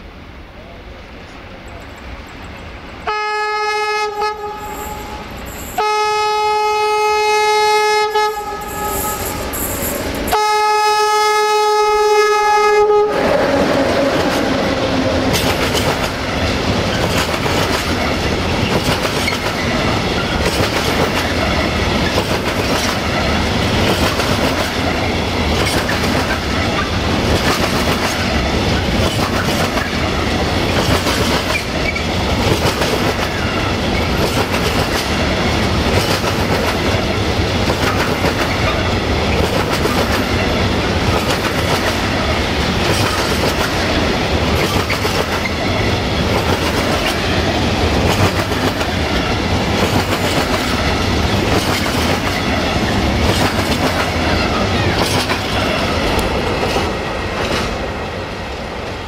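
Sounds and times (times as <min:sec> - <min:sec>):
train rumbling past: 0:00.0 - 0:59.0
locomotive horn blasts: 0:03.1 - 0:09.4, 0:10.3 - 0:14.2
wheels clacking over rail joints: 0:13.8 - 0:57.8.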